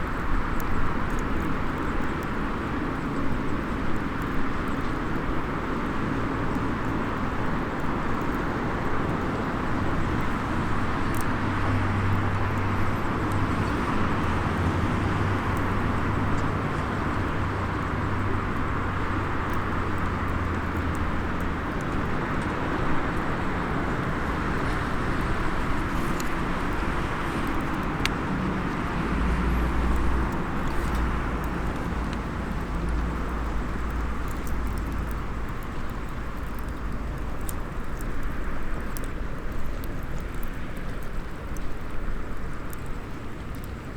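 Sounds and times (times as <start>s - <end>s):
distant traffic rumble: 0.0s - 43.9s
faint crackles of burning wood: 0.0s - 43.9s.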